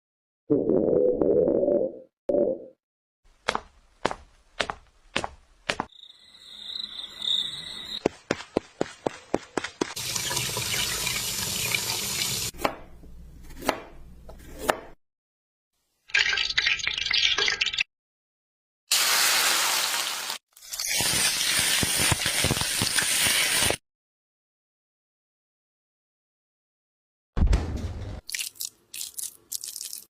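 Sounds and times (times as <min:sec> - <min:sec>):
knife chopping: 0:12.6 - 0:15.0.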